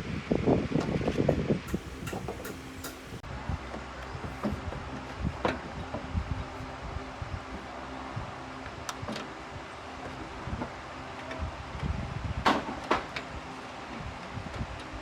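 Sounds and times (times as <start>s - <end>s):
sharp clicks and knocks: 1.7s - 3.2s
steady low hum: 1.7s - 12.4s.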